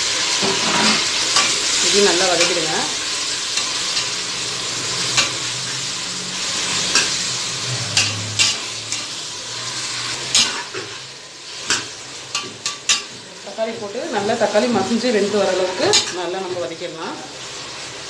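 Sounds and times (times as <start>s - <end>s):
vegetables sizzling in hot oil: 0.0s - 18.0s
metal spoon scraping a pot: 0.4s - 1.6s, 6.6s - 9.2s.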